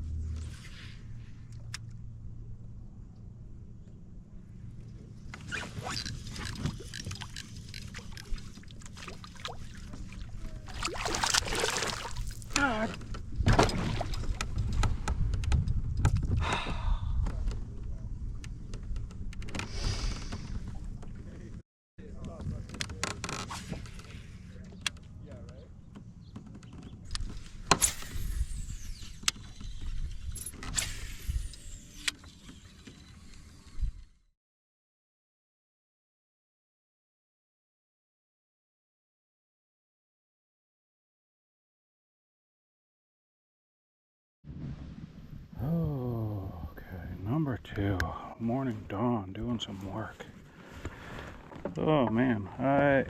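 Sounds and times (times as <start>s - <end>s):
water lapping against hull: 5.7s - 15.0s
reel spool whining: 27.8s - 34.2s.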